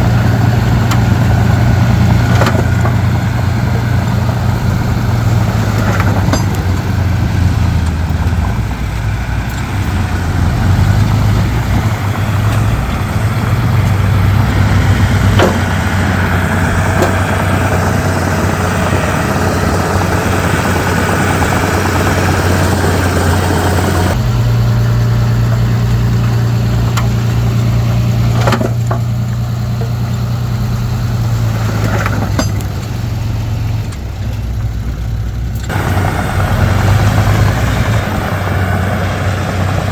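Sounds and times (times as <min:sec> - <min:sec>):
bulldozer diesel engine running: 0:00.0 - 0:39.9
sharp metallic knocks: 0:04.8 - 0:07.2, 0:14.6 - 0:21.8, 0:31.8 - 0:32.8.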